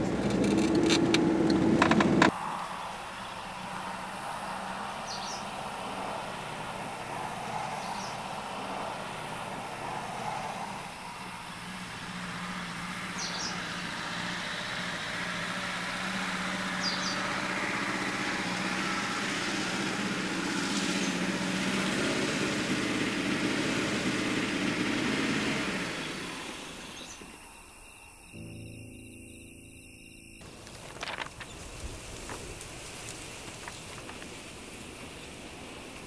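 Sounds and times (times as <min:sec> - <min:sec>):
car engine running: 0:00.0 - 0:02.3, 0:08.2 - 0:27.2.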